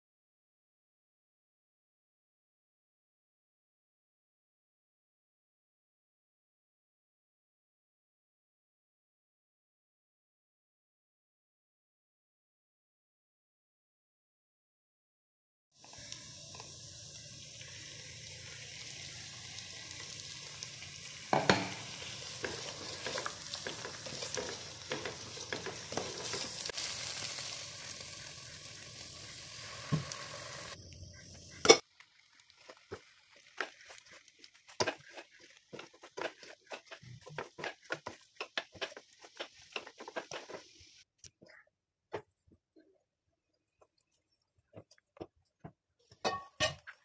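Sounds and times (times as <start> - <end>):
food sizzling in a pan: 15.8 - 41.1, 46.1 - 47.0
stirring clicks and scrapes: 22.0 - 26.7, 32.6 - 41.6.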